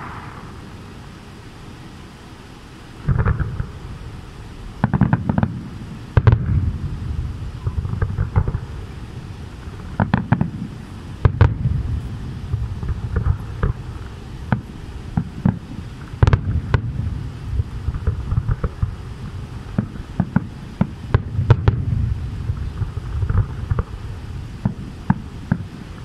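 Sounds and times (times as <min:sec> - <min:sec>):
firework shells bursting: 0:00.0 - 0:01.5, 0:03.0 - 0:26.0
low rumble: 0:00.0 - 0:01.6, 0:05.8 - 0:10.0, 0:11.5 - 0:14.3.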